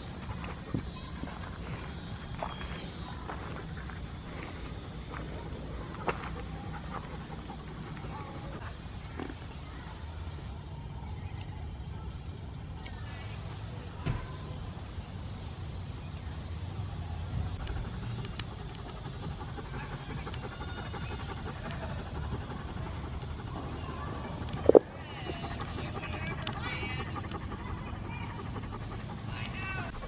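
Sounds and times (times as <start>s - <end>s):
insect trilling: 17.6s - 30.0s.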